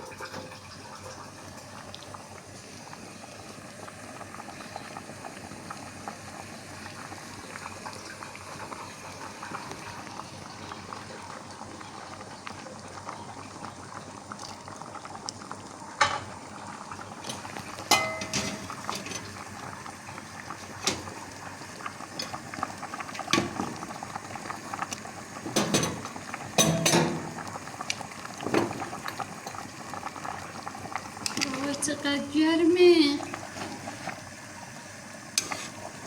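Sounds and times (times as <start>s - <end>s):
liquid bubbling at the boil: 0.0s - 36.0s
dishes and utensils clinking: 17.3s - 19.3s, 25.5s - 27.4s.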